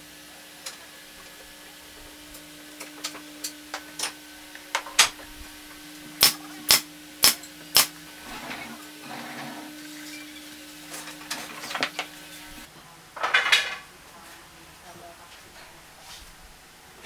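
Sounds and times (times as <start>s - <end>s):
hammer striking wood: 6.2s - 7.9s.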